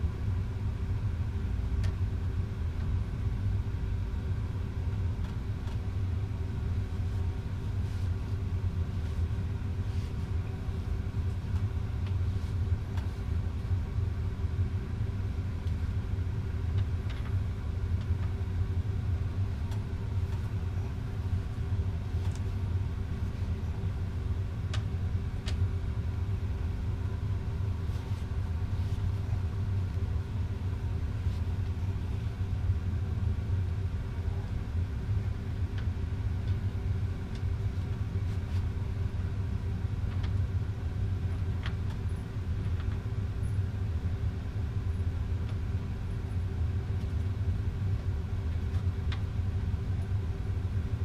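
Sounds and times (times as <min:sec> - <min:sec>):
low rumble with hum: 0:00.0 - 0:51.0.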